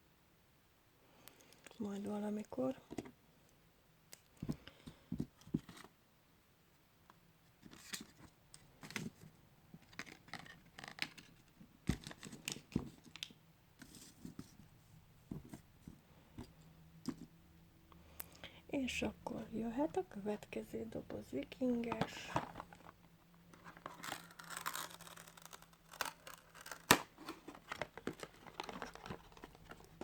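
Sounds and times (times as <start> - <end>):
plastic toy and wrappings handled: 7.6 - 14.6, 21.8 - 30.0.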